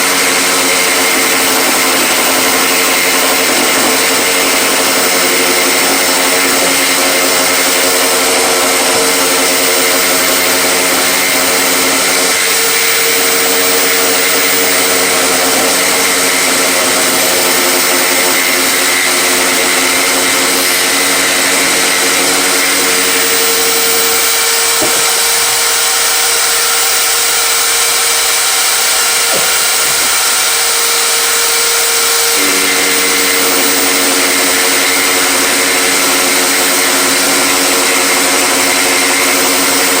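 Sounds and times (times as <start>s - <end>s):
power tool motor running: 0.0s - 40.0s.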